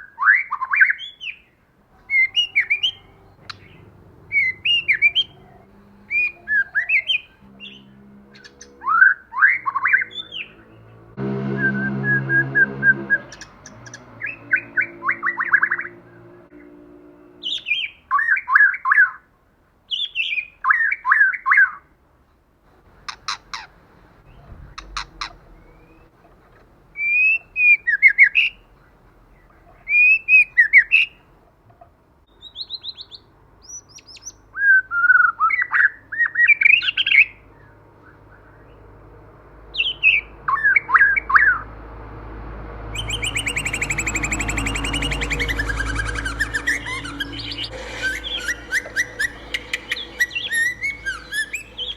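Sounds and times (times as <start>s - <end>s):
bird singing whistled phrases: 43.0s - 51.9s
buzzy rattling bird trill: 43.0s - 51.9s.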